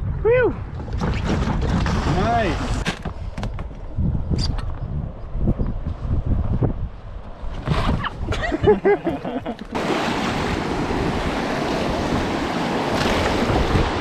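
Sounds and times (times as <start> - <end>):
whitewater rapids roaring: 9.8 - 14.0.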